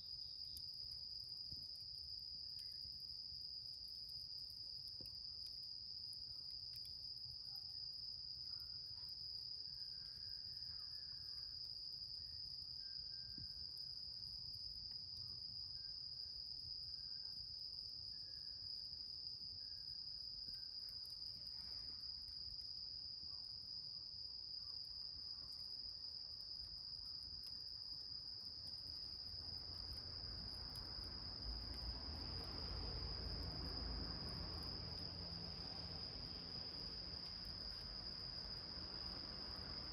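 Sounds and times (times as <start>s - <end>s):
crickets trilling: 0.1s - 22.8s, 24.6s - 39.9s
fire crackling: 28.6s - 39.9s.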